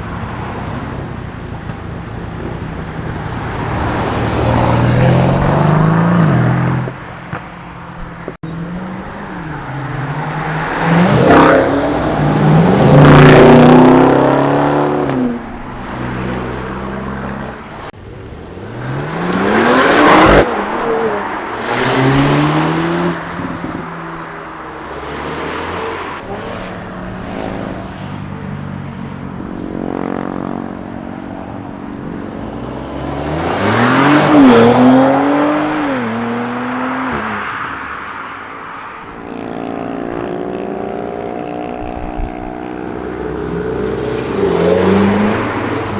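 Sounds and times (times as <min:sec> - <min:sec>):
cars accelerating past: 0:02.8 - 0:07.4, 0:08.2 - 0:45.9.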